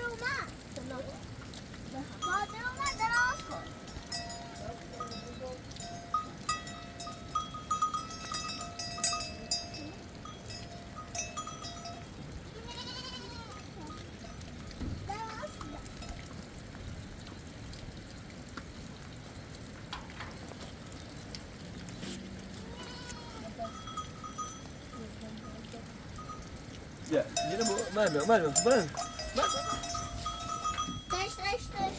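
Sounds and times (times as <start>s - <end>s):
livestock bells clinking: 1.9s - 16.4s, 22.7s - 31.9s
sheep bleating: 12.5s - 13.7s, 22.5s - 23.6s.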